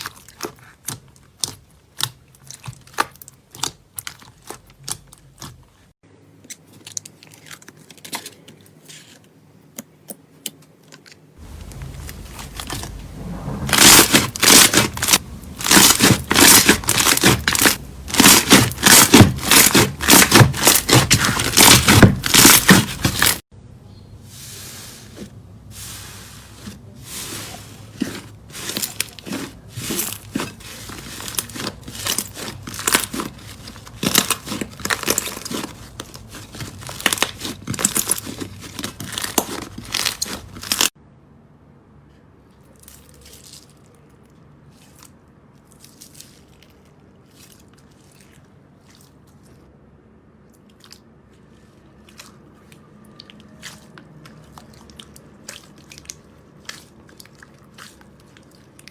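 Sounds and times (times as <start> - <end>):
slime crackling and popping: 13.7 - 23.4, 28.0 - 41.0.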